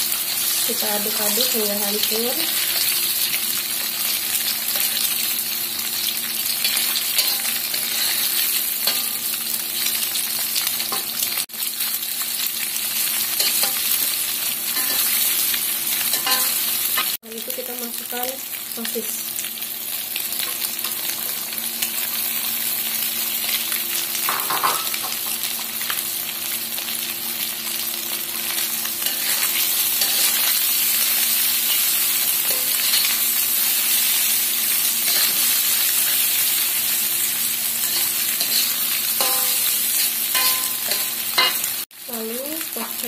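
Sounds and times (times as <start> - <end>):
food sizzling in a wok: 0.0 - 43.0
metal spatula scraping a wok: 6.6 - 9.2, 29.0 - 30.6, 35.1 - 35.6, 37.8 - 41.6.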